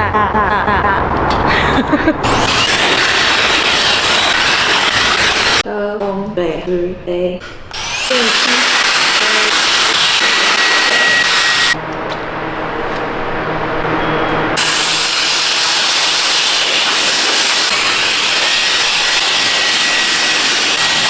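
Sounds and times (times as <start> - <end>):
handheld blower rushing air: 2.2 - 5.6, 7.7 - 11.8, 14.6 - 21.0.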